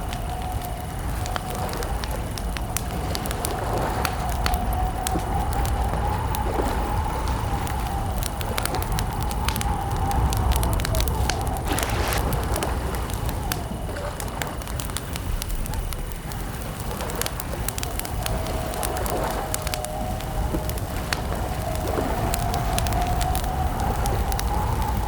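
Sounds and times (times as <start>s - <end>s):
campfire crackling and popping: 0.0s - 25.0s
low rumble: 7.8s - 14.6s.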